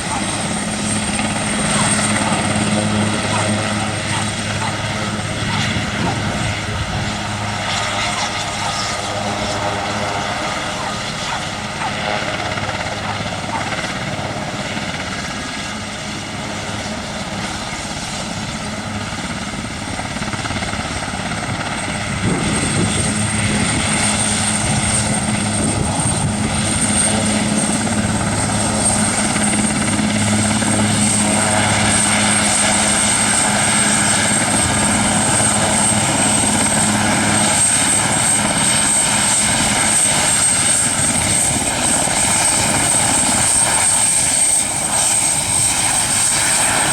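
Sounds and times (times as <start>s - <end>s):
rotor low drone: 0.0s - 14.4s
helicopter turbine whine: 0.0s - 46.9s.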